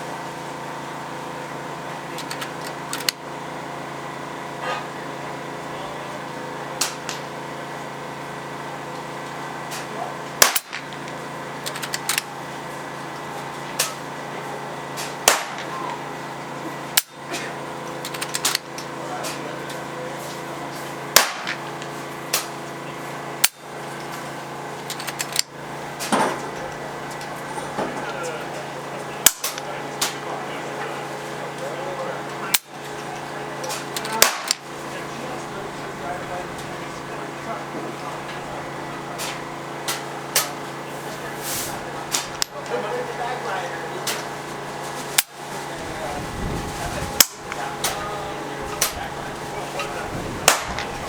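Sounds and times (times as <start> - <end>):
steady hum: 0.0 - 51.0
air rifle shots cracking: 10.4 - 11.1, 15.0 - 15.8, 21.2 - 22.6, 33.8 - 34.7, 50.2 - 51.0.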